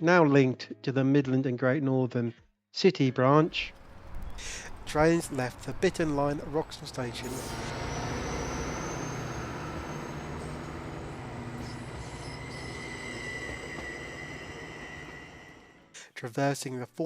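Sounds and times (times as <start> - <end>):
high wheel squeal: 3.5 - 15.9
train rumbling along track: 3.5 - 15.9.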